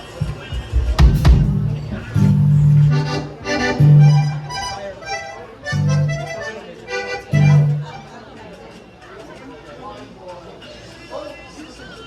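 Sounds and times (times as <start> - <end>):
accordion playing: 1.1 - 8.3.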